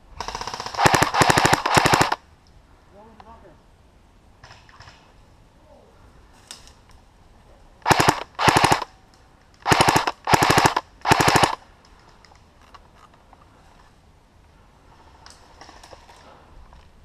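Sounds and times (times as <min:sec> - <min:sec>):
airsoft gun bursts: 0:00.2 - 0:02.2, 0:07.8 - 0:08.9, 0:09.6 - 0:11.6
faint distant shots: 0:00.2 - 0:02.2, 0:07.8 - 0:09.0, 0:09.6 - 0:11.6.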